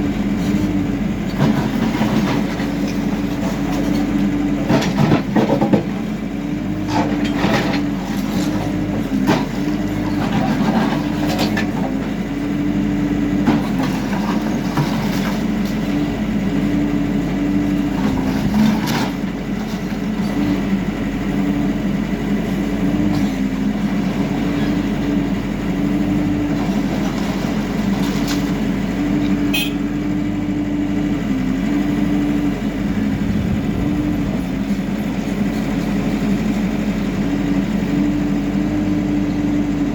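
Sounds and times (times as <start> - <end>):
diesel engine working: 0.0 - 39.9
bucket clanking against rubble: 1.3 - 6.1, 6.8 - 12.1, 13.4 - 16.0.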